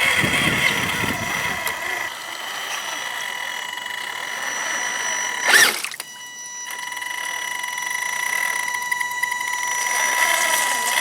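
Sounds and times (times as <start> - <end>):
high electric motor whine: 0.0 - 11.0.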